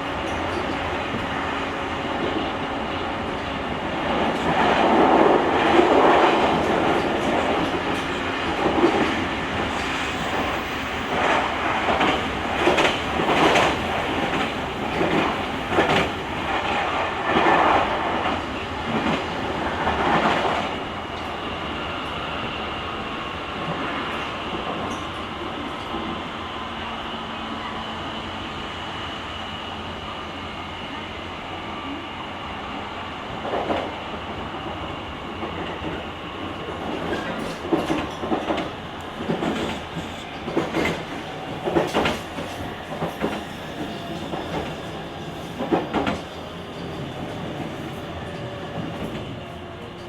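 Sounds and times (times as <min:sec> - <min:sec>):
train wheel and body rumble: 0:00.0 - 0:50.0
train clattering over rail joints: 0:04.2 - 0:20.7, 0:36.7 - 0:50.0.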